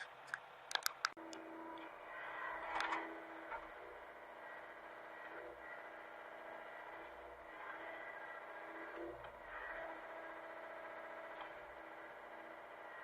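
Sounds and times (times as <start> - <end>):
sharp clicks: 0.0 - 1.4
excavator engine running: 0.0 - 13.0.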